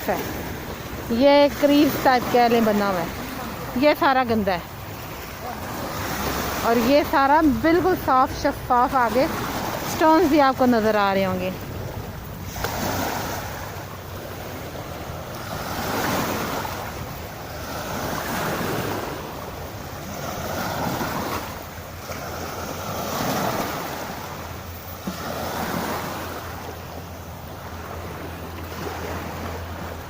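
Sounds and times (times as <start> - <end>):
sea waves washing onto shore: 0.0 - 30.0
wind rumbling on microphone: 8.7 - 30.0.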